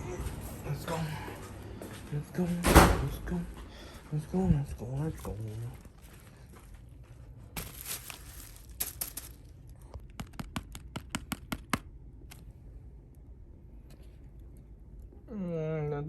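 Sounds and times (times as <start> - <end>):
plastic wrapping rustling and tearing: 7.5 - 10.1.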